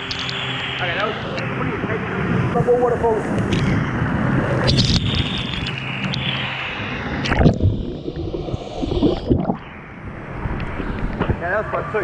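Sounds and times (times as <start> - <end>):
muffled water gurgling: 3.3 - 11.4.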